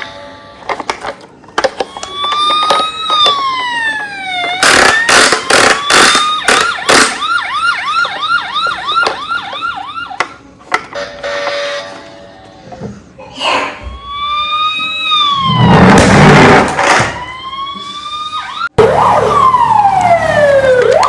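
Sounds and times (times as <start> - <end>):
toy siren wailing and yelping: 1.8 - 10.2, 13.8 - 15.9.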